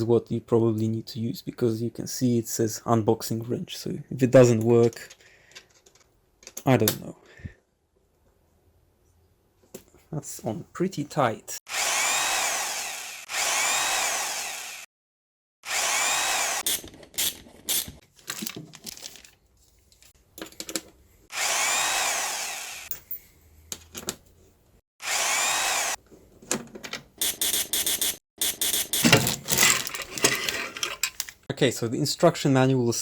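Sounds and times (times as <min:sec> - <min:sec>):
power drill motor whining: 0:11.7 - 0:14.9, 0:15.6 - 0:17.9, 0:21.3 - 0:22.9, 0:25.0 - 0:26.0.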